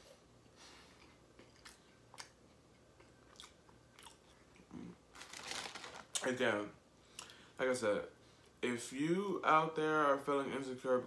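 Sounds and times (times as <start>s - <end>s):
quiet chewing: 0.9s - 5.0s.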